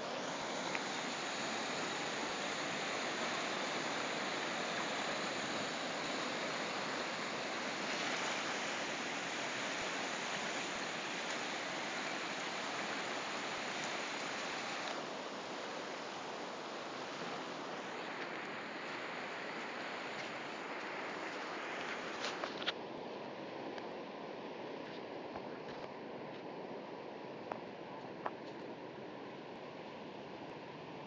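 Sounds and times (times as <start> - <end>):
floodwater rushing: 0.0 - 22.3.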